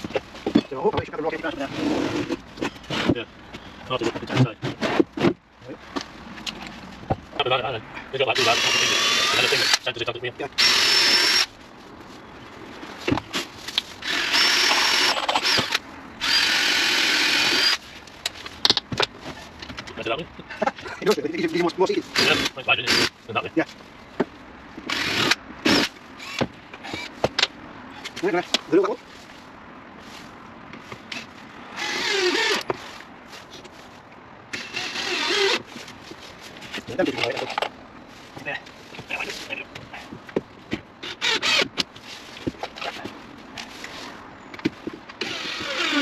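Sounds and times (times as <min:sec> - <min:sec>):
power drill whining: 0:08.4 - 0:09.8, 0:10.6 - 0:11.5, 0:14.0 - 0:17.8, 0:22.1 - 0:23.1, 0:24.9 - 0:27.1, 0:31.8 - 0:32.6, 0:34.5 - 0:35.6, 0:41.0 - 0:41.7, 0:45.2 - 0:46.0.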